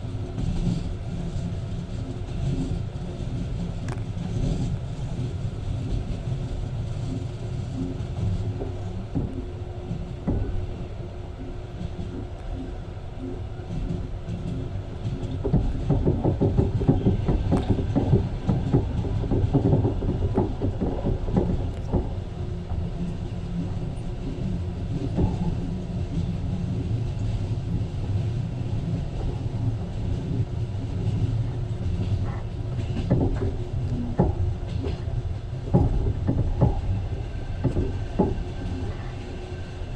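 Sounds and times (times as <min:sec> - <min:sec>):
train rumbling: 0:00.0 - 0:39.9
wheels clattering over rails: 0:11.5 - 0:39.9.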